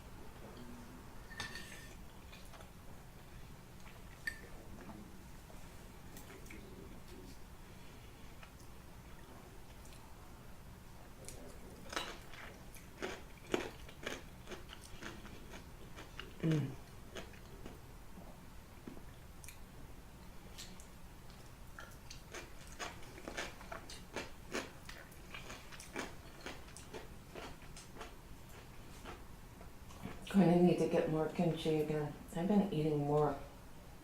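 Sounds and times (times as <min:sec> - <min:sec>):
chewing and biting: 0:11.3 - 0:17.8, 0:20.6 - 0:29.2.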